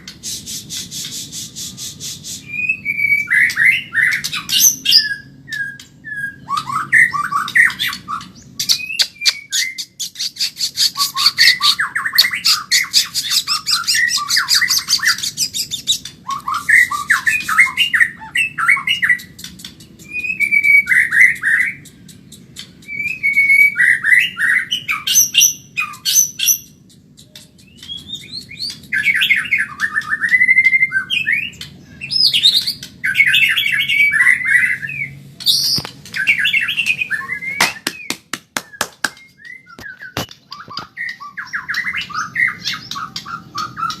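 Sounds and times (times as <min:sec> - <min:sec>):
songbird singing varied song: 0:00.8 - 0:44.0
rapid high clicking bird notes: 0:06.6 - 0:30.8, 0:35.4 - 0:44.0.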